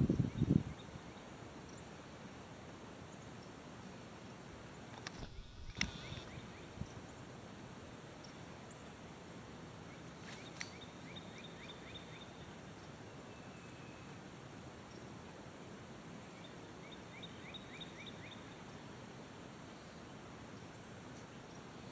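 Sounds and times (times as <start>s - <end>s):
steady hiss: 0.0s - 21.9s
faint bird chirping: 5.2s - 7.3s, 9.9s - 14.2s.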